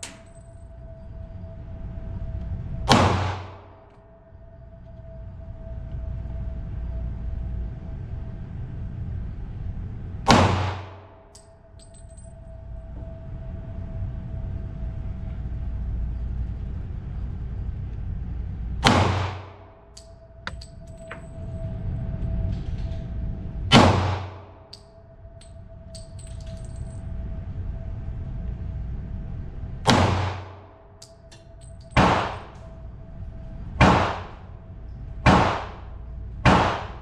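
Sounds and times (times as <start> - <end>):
steady low rumble: 0.0 - 37.0
pistol shots: 2.9 - 3.6, 10.3 - 11.0, 18.8 - 19.5, 23.7 - 24.4, 29.9 - 30.6, 32.0 - 32.4, 33.8 - 34.4, 35.3 - 35.8, 36.5 - 37.0.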